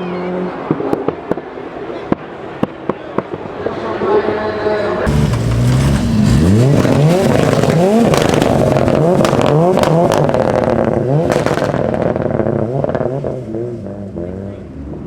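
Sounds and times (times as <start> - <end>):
exhaust cracks: 5.1 - 14.2
car engine revving: 5.1 - 15.0.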